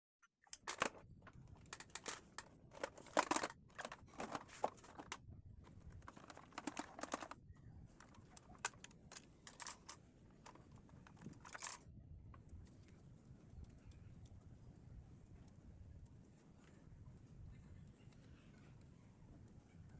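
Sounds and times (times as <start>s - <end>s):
hands handling plastic vacuum: 0.4s - 7.4s, 8.0s - 11.8s.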